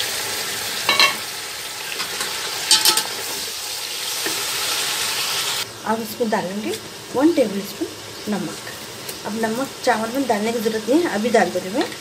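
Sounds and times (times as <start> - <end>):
tomatoes sizzling in hot oil: 0.0 - 12.0
spatula clinking against pot: 2.7 - 3.1.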